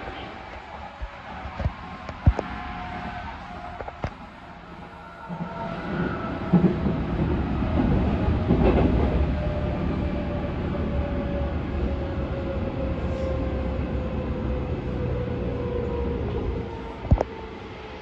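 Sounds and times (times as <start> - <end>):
wheels rumbling on rail: 0.0 - 18.0.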